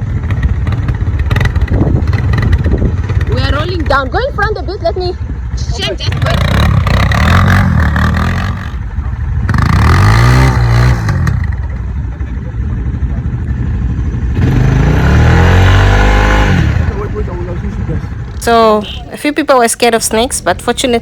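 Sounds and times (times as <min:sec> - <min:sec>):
quad bike engines revving: 0:00.0 - 0:19.1.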